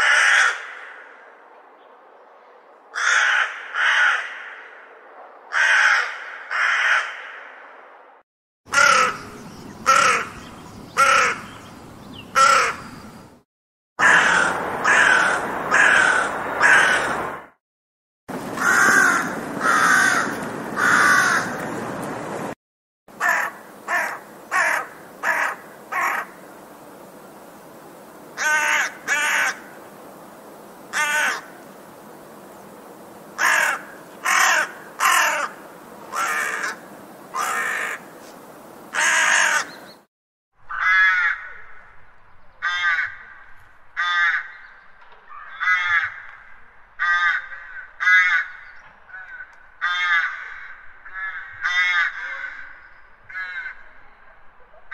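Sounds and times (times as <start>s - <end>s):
crows cawing: 0.0s - 1.3s, 2.9s - 4.8s, 5.5s - 7.5s, 8.7s - 10.4s, 11.0s - 11.5s, 12.4s - 12.9s, 14.0s - 17.4s, 18.6s - 21.7s, 23.1s - 26.5s, 28.4s - 29.8s, 30.9s - 31.6s, 33.4s - 38.1s, 38.9s - 39.9s, 40.7s - 41.8s, 42.6s - 44.6s, 45.3s - 53.9s.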